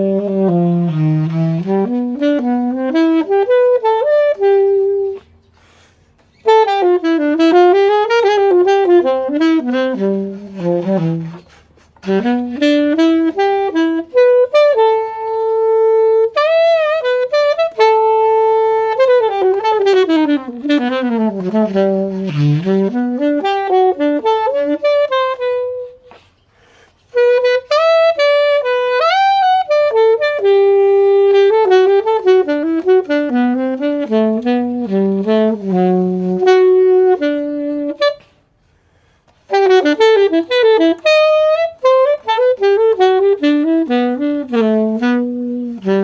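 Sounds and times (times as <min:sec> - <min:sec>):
alto saxophone solo: 0:00.0 - 0:46.0
player breathing: 0:05.4 - 0:06.3, 0:26.1 - 0:27.1, 0:38.4 - 0:39.4.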